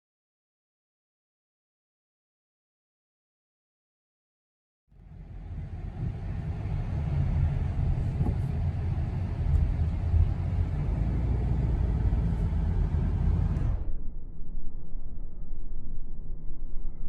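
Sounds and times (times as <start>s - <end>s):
car driving rumble: 4.9s - 14.2s.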